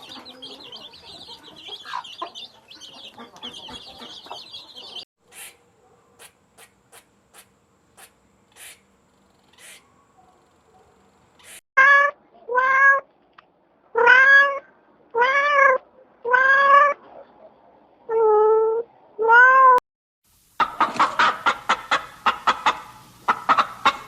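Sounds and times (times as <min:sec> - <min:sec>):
cat meowing: 0:11.8 - 0:13.0, 0:15.2 - 0:17.0.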